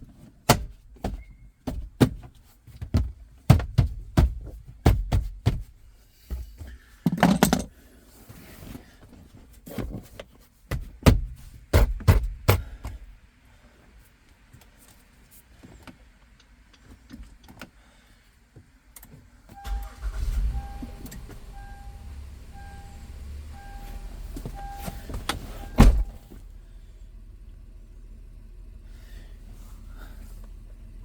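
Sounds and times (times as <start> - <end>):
car engine starting and idling: 18.6 - 31.0
warning chime beeping: 19.6 - 25.0.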